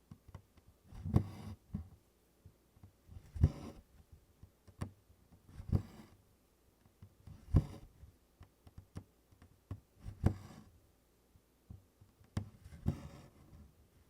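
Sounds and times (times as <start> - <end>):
thread rasping through canvas: 0.0 - 2.0, 2.8 - 4.0, 4.6 - 6.2, 7.0 - 10.7, 12.2 - 13.6.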